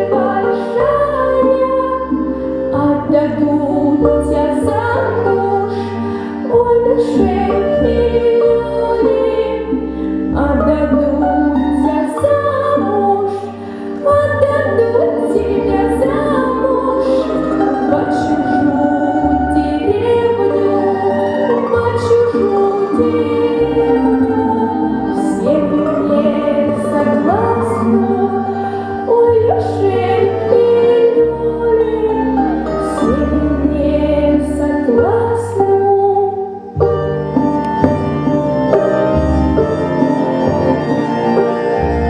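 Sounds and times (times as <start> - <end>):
folk song sung by voices: 0.0 - 36.8
instrumental accompaniment: 0.0 - 42.0.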